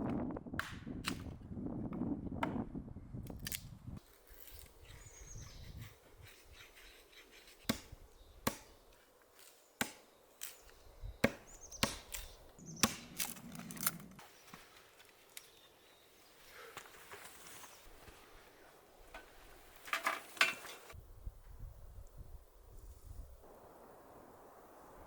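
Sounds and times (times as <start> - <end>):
hatchet chopping wood: 0.6 - 1.3, 7.6 - 8.8, 9.8 - 10.6, 11.2 - 13.9.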